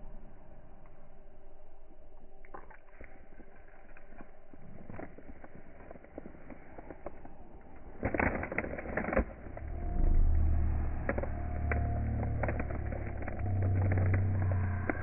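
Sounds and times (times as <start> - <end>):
vehicle engine running: 9.4 - 15.0.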